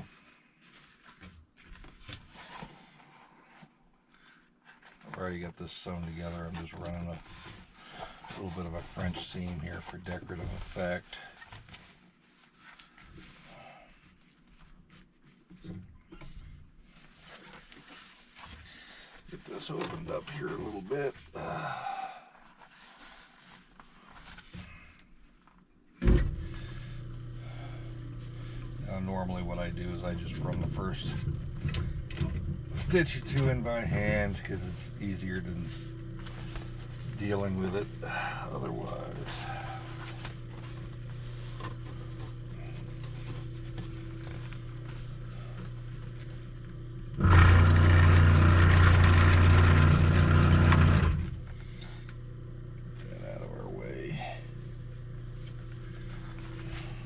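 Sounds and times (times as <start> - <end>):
loud thump: 26.0 - 26.6
sewing machine motor humming: 26.3 - 53.2
sewing machine stitching: 47.2 - 51.4.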